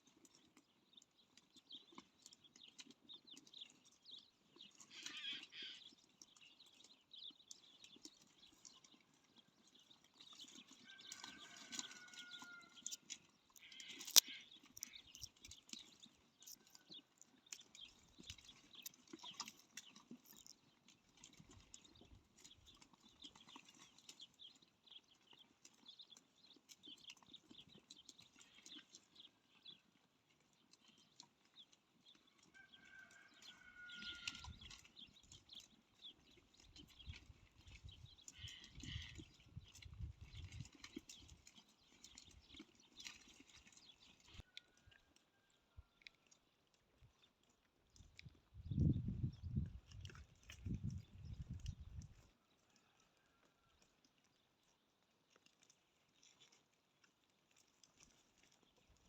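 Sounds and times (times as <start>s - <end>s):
small clicks: 12.9s - 15.6s.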